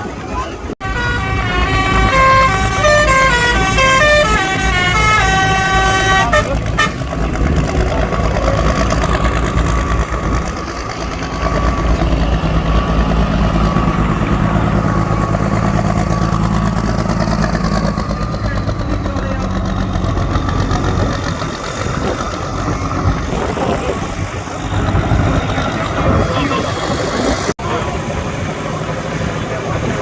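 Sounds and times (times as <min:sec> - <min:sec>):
heavy vehicle engine running: 0:00.0 - 0:30.0
horn playing short tune: 0:00.8 - 0:07.1.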